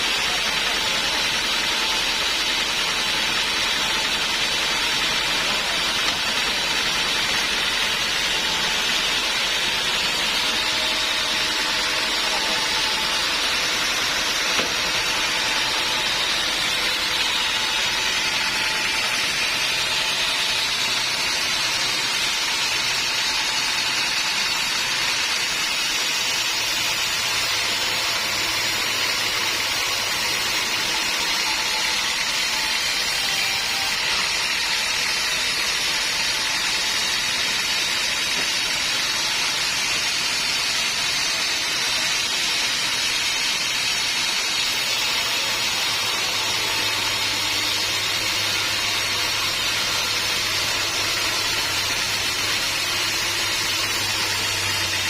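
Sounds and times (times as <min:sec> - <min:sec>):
band sawmill cutting wood: 0:00.0 - 0:55.0.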